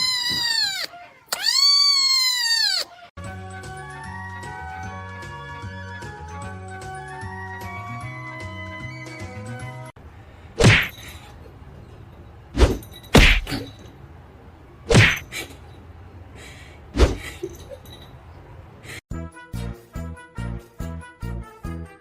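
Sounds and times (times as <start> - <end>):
background music: 3.2 - 9.9, 19.1 - 22.0.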